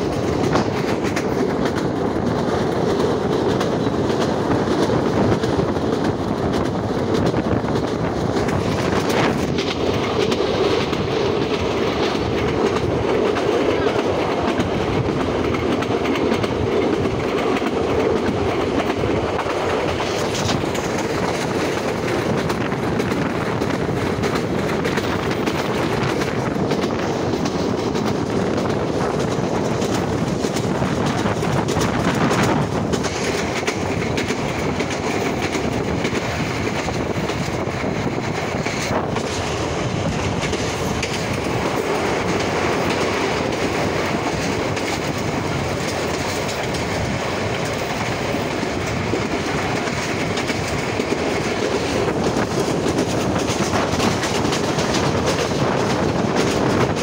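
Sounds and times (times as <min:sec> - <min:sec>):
train rumble: 0:00.0 - 0:57.0
wheels clacking over rail joints: 0:00.0 - 0:57.0.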